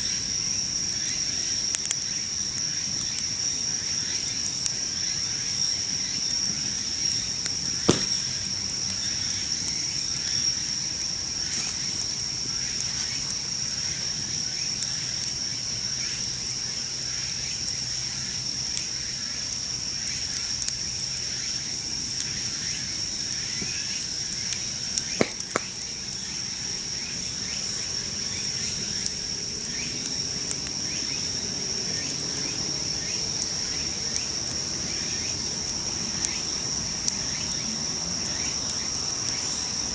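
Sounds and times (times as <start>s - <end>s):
insects trilling: 0.0s - 39.9s
campfire crackling: 0.1s - 15.8s, 18.6s - 32.1s, 32.8s - 39.9s
sharp fire pops: 7.0s - 9.8s, 23.4s - 26.3s.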